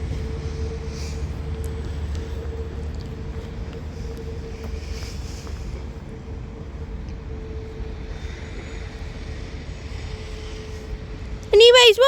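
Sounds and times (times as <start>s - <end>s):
constant whine: 0.0s - 12.0s
diesel train rumble: 0.0s - 12.0s.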